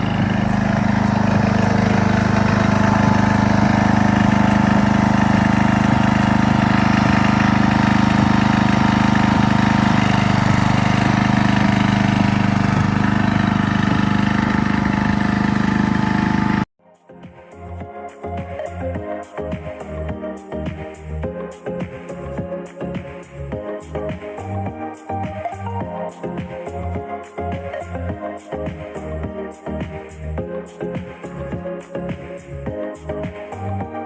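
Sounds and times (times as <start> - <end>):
engine running steadily: 0.0 - 16.7.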